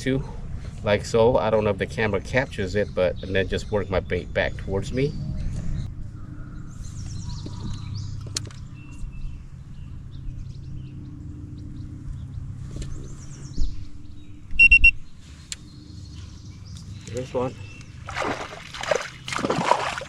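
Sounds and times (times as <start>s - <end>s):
low steady rumble: 0.0s - 20.0s
small birds chirping: 0.0s - 20.0s
electronic triple beep: 14.6s - 15.0s.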